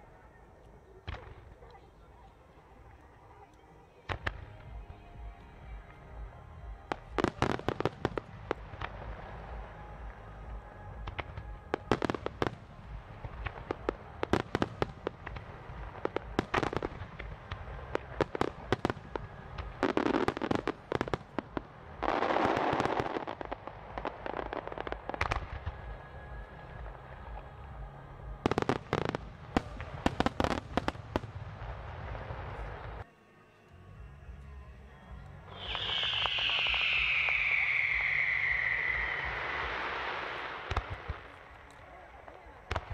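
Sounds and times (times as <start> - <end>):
firework shells bursting: 35.6 - 41.8.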